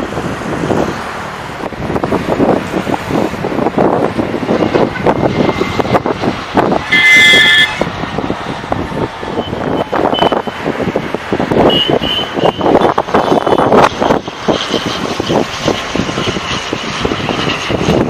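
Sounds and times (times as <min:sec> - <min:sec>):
road traffic: 0:00.0 - 0:18.0
vehicle horn honking: 0:06.8 - 0:07.9, 0:11.6 - 0:13.7.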